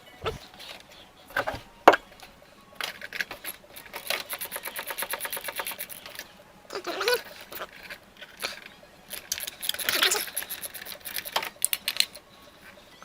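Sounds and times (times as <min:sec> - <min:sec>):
hand ratchet clicking: 0:02.8 - 0:06.2, 0:07.6 - 0:12.2.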